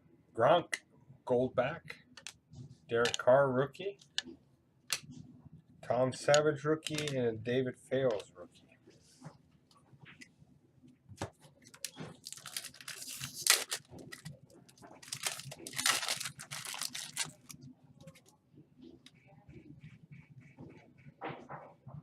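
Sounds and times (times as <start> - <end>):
foil wrapper tearing and crinkling: 12.2 - 14.4, 15.0 - 17.5.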